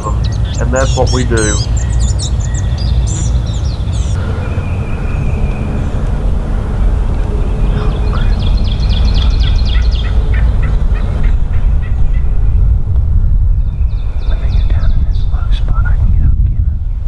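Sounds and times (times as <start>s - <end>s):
bird chips: 0.0s - 12.3s
bird whistle: 0.0s - 12.3s
low rumble: 0.0s - 17.0s.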